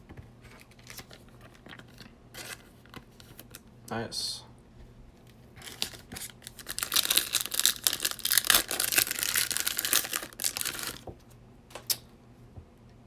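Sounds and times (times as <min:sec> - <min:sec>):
wrapper tearing and crinkling: 0:00.7 - 0:02.6, 0:05.6 - 0:11.1.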